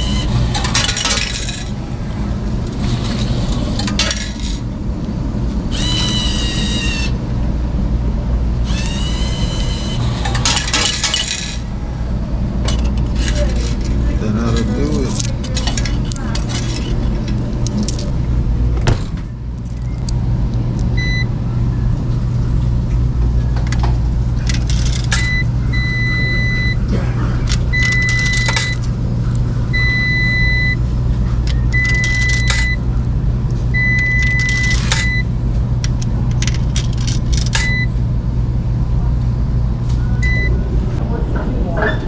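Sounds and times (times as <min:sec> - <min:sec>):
steady low hum: 0:00.0 - 0:42.0
electronic beep: 0:31.5 - 0:32.8.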